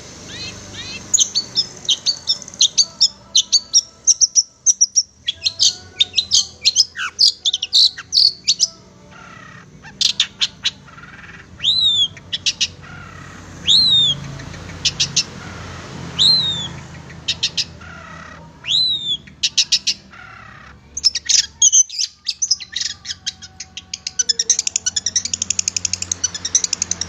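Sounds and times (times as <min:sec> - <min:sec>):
bird chirping: 0:00.0 - 0:27.0
bird downslurred whistles: 0:11.6 - 0:12.2, 0:18.6 - 0:19.3.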